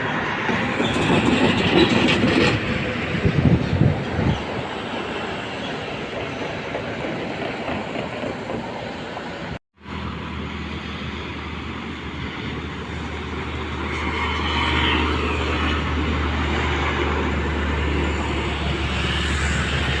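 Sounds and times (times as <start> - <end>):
heavy road traffic: 0.0 - 20.0
large vehicles passing: 8.1 - 20.0.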